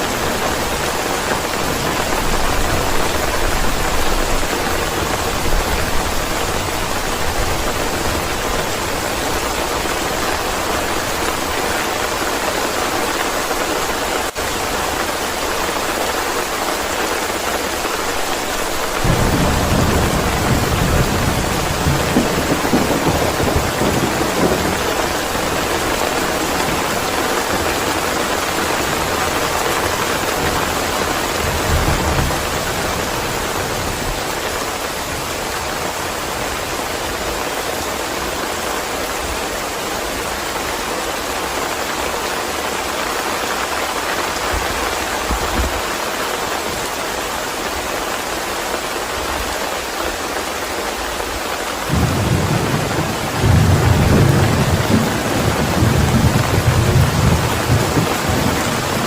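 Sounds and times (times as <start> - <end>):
thunder rumbles: 0.0 - 36.6, 51.9 - 59.0
steady rain: 0.0 - 59.0.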